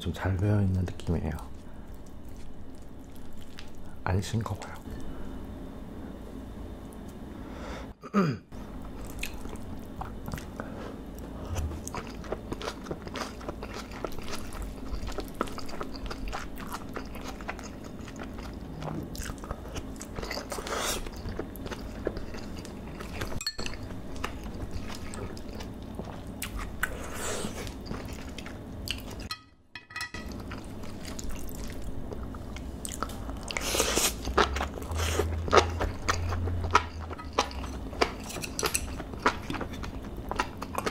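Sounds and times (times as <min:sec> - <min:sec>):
close-miked chewing: 0:08.8 - 0:29.3, 0:30.2 - 0:40.9.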